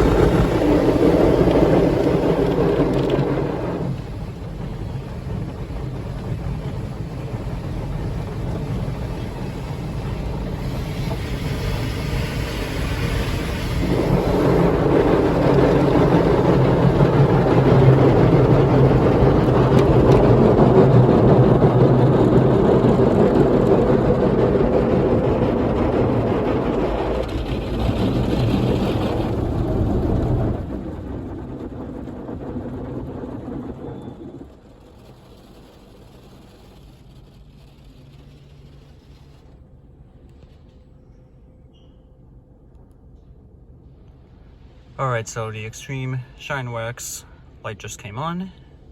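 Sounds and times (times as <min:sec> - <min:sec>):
car wash brushes scrubbing: 0:05.2 - 0:20.8, 0:34.7 - 0:39.6
water spraying: 0:07.5 - 0:18.1.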